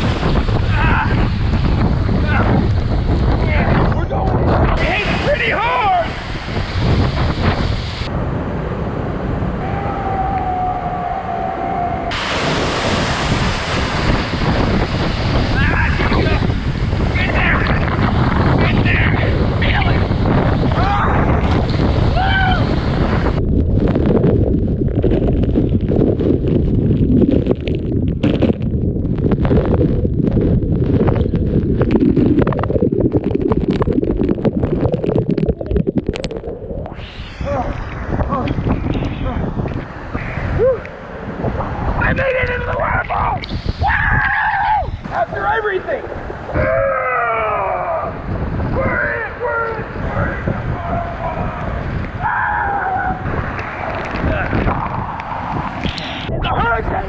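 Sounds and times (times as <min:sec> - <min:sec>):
waterfall rumble: 0:00.0 - 0:57.0
wind buffeting microphone: 0:00.0 - 0:57.0
waterfall spray roaring: 0:04.8 - 0:08.2, 0:09.6 - 0:18.2, 0:35.1 - 0:41.8.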